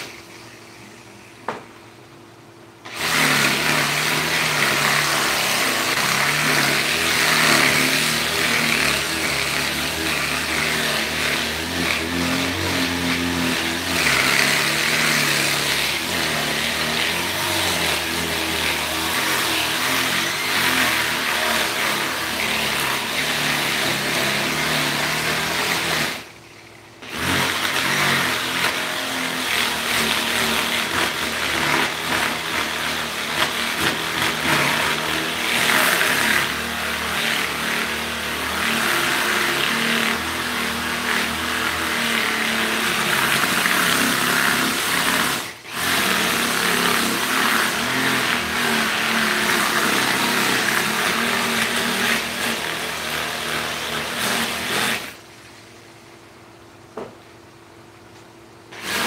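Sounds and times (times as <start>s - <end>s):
power tool motor whirring: 2.8s - 55.3s, 58.7s - 59.0s.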